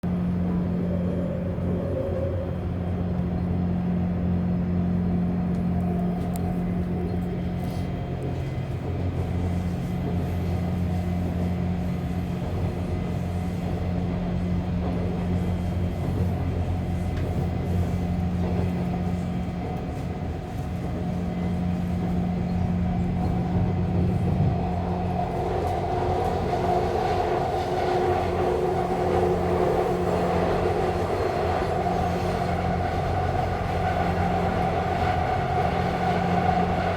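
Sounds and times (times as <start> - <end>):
rail noise: 0.0 - 36.9
subway motor hum: 0.0 - 36.9.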